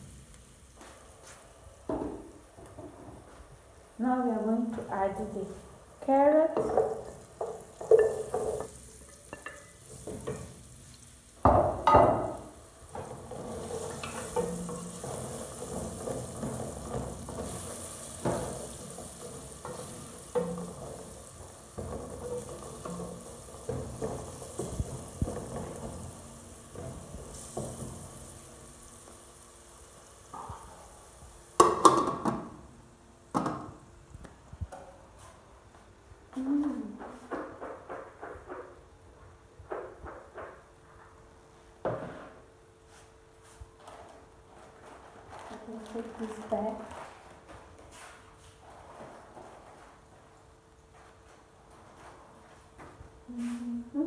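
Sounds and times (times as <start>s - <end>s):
onions sizzling in a pot: 0.0s - 35.3s, 43.6s - 54.0s
spoon scraping and knocking pot: 6.5s - 10.6s, 11.5s - 26.1s.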